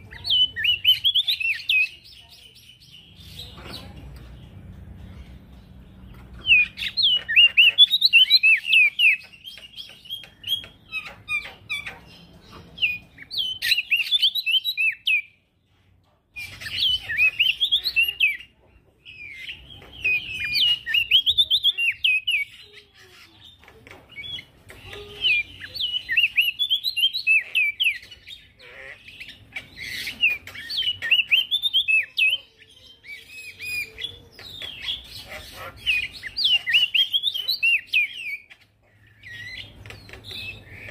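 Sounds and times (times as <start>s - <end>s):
bird twittering and chirping: 0.0s - 15.4s, 16.3s - 40.9s.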